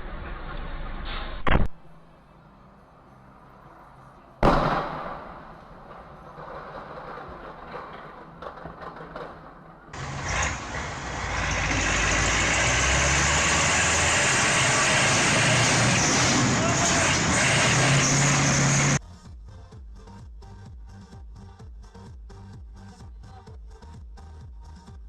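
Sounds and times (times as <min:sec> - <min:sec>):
engine and road noise: 0:01.0 - 0:19.7
vehicle collision crash: 0:04.4 - 0:19.0.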